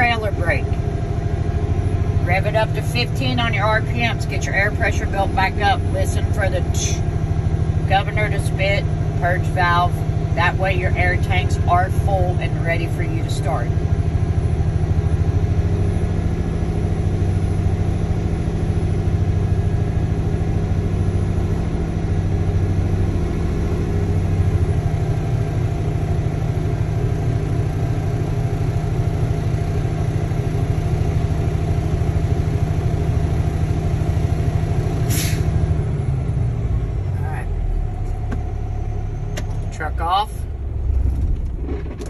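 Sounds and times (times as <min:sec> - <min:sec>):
diesel truck engine running: 0:00.0 - 0:42.0
air brake hiss: 0:35.1 - 0:35.6.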